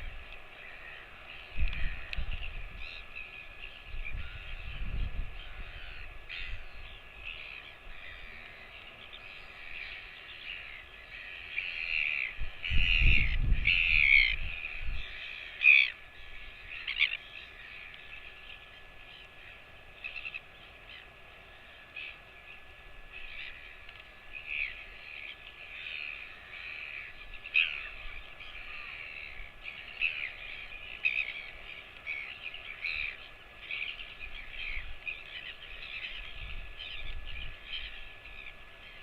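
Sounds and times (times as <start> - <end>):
crows cawing: 0.5 - 2.2, 9.4 - 18.0.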